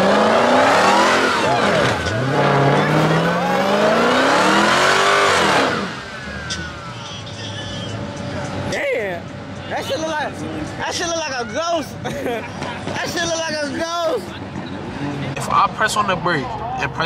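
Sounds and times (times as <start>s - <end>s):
tyres spinning and squealing: 0.0s - 9.0s
car engine revving: 0.0s - 11.1s.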